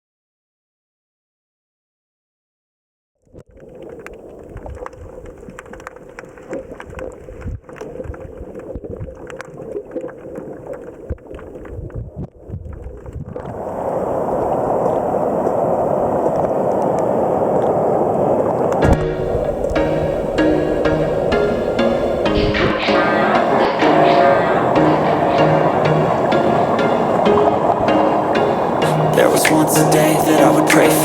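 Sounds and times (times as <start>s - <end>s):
crackles and knocks: 3.3s - 13.4s
wind rumbling on microphone: 3.6s - 9.3s, 11.0s - 23.0s
steady rush of noise: 18.8s - 31.0s.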